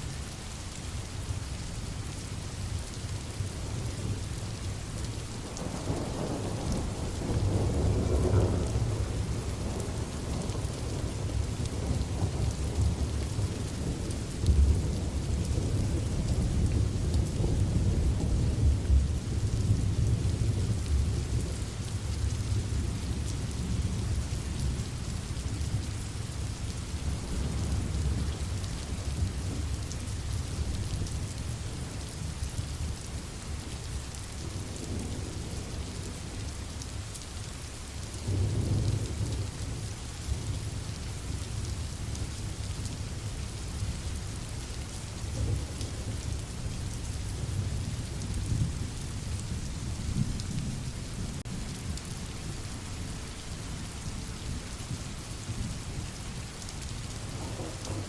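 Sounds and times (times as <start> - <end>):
steady rain: 0.0 - 58.0
rolling thunder: 57.1 - 58.0.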